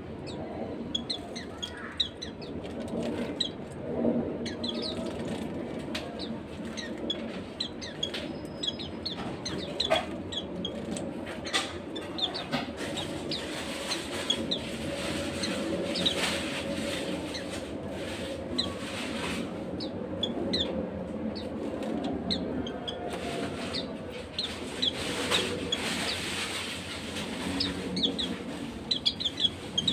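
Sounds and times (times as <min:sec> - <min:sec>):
birds chirping high: 0:00.0 - 0:29.9.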